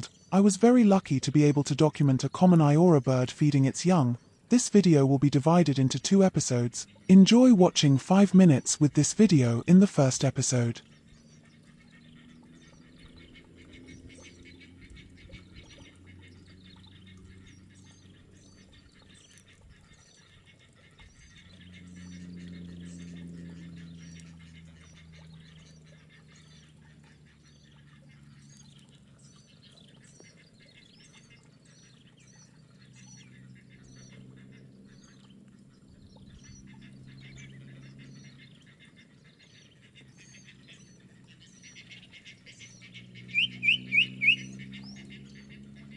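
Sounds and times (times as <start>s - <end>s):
low hum: 0.0s - 30.2s
small birds chirping: 0.0s - 45.9s.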